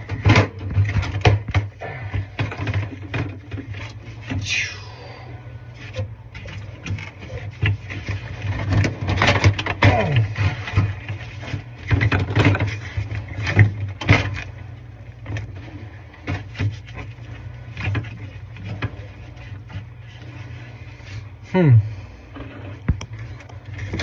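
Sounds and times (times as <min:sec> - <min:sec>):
parts knocking and scraping: 0:00.0 - 0:04.6, 0:05.8 - 0:21.4, 0:22.2 - 0:24.0
steady low hum: 0:00.0 - 0:24.0.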